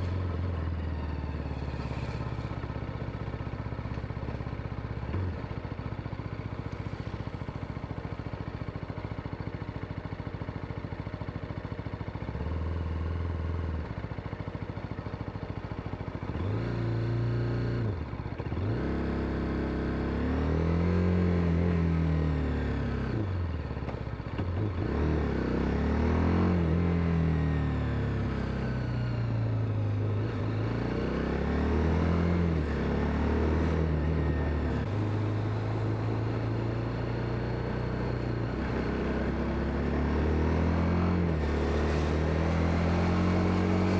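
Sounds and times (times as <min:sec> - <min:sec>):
motorcycle engine idling and revving: 0:00.0 - 0:43.9.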